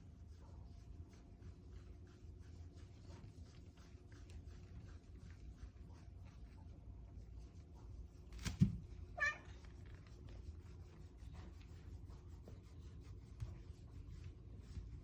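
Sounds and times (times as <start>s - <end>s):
cat meowing: 9.2s - 9.6s.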